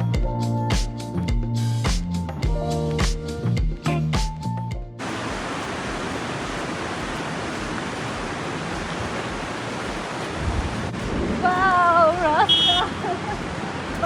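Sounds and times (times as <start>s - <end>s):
background music: 0.0s - 5.0s
mountain river flowing: 5.0s - 14.0s.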